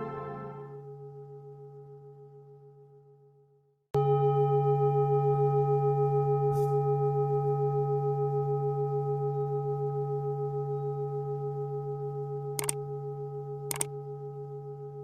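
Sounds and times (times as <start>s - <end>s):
singing bowl ringing: 4.0s - 15.0s.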